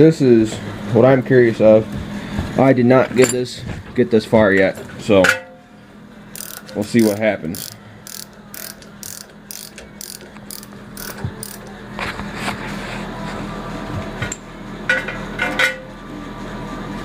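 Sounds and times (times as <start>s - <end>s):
steady low hum: 0.0s - 17.0s
ratchet wrench clicking: 6.3s - 11.7s.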